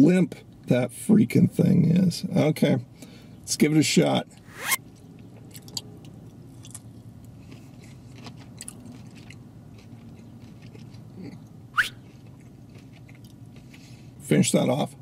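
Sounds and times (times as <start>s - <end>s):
short rising squeak: 4.4s - 4.8s
chewing with soft mouth clicks: 5.0s - 14.2s.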